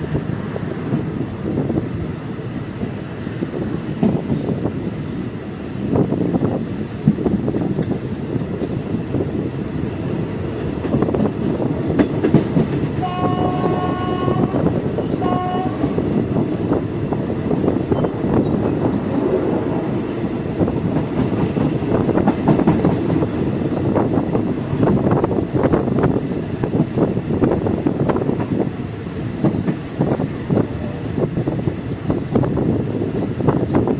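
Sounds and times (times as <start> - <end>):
train wheels clattering on rail: 0.0 - 33.9
train horn blasts: 13.0 - 16.0.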